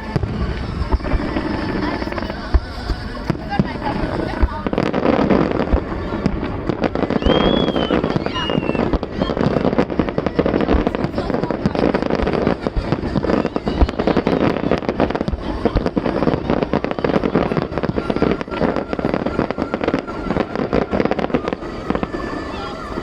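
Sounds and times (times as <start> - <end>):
deep firework booms: 0.0 - 23.0
fireworks bangs and crackles: 0.0 - 23.0.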